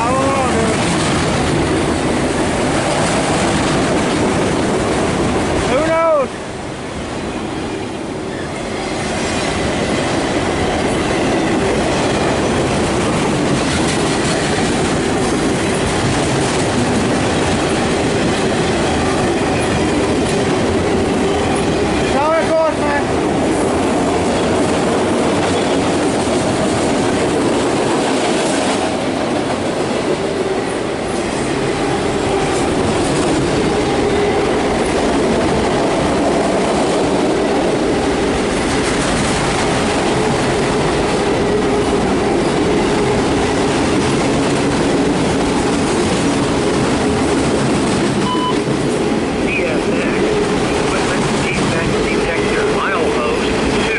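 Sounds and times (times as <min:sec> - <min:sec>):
wheels clattering on rail: 0:00.0 - 0:05.9, 0:07.9 - 0:22.4, 0:23.1 - 0:53.9
freight train rumble: 0:00.0 - 0:53.9.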